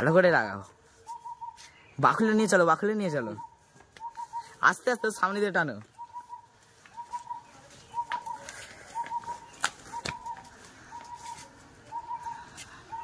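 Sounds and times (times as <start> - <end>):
bird hooting: 1.0 - 1.7, 3.1 - 4.8, 5.9 - 13.0.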